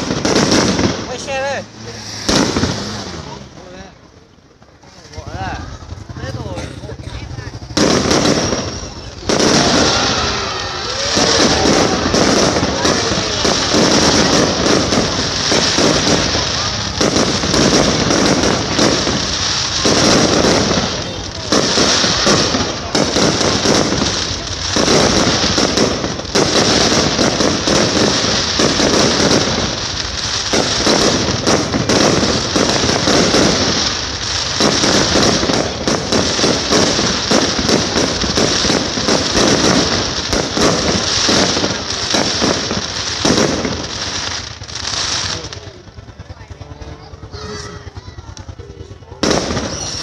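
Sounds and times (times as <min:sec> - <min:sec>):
fireworks crackling and banging: 0:00.0 - 0:50.0.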